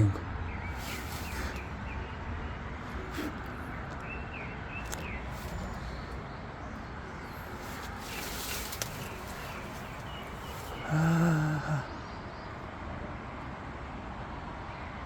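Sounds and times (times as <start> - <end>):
bird chirps: 0.0 - 12.6
footsteps through grass: 7.4 - 10.8.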